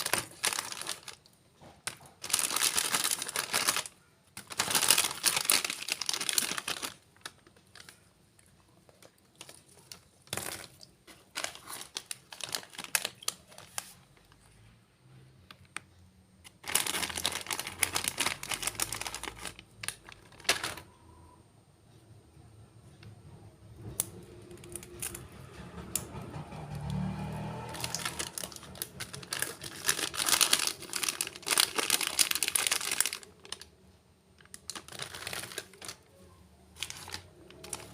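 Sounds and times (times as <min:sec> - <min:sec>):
plastic packet crinkling: 0:00.0 - 0:14.6, 0:15.7 - 0:21.0, 0:27.4 - 0:33.8, 0:34.4 - 0:37.9.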